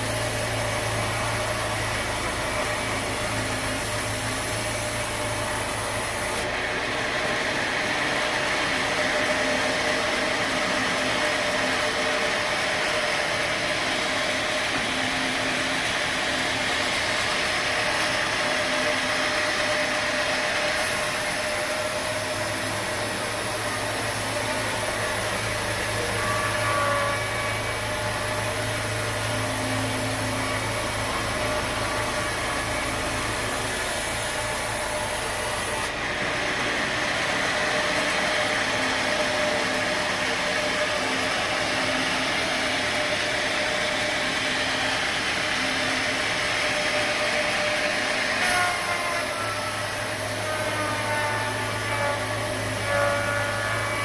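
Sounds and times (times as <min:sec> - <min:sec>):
saw cutting timber: 0:00.0 - 0:54.0
sawmill machinery running: 0:00.0 - 0:54.0
high squeal: 0:08.9 - 0:35.9, 0:45.8 - 0:54.0.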